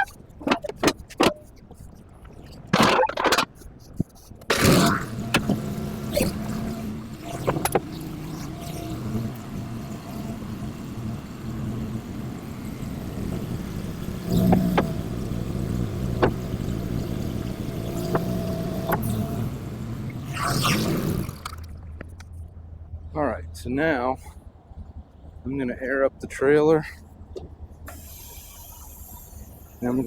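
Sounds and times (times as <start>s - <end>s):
knocks and clunks: 0.0s - 9.5s, 12.6s - 23.1s, 26.9s - 28.0s
diesel truck engine idling: 3.5s - 30.0s.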